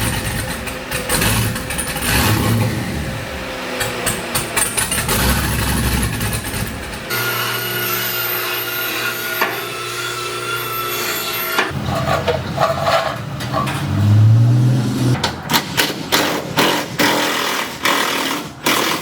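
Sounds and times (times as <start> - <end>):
power tool drone: 0.0 - 11.8, 13.8 - 15.2
steady workshop hum: 0.0 - 19.0.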